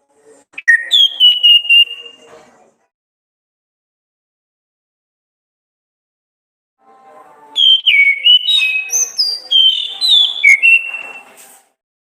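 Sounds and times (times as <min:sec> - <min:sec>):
thrush singing whistled notes: 0:00.6 - 0:02.2, 0:07.6 - 0:11.2.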